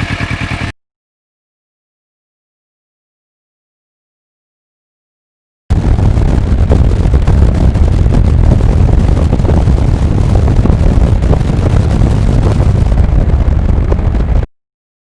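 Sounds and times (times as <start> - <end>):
wind buffeting microphone: 5.7 - 14.5.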